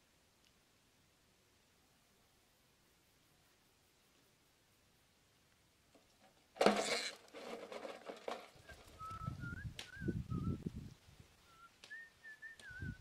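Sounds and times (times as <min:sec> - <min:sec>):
bird whistling: 0:08.6 - 0:10.6, 0:11.4 - 0:13.0.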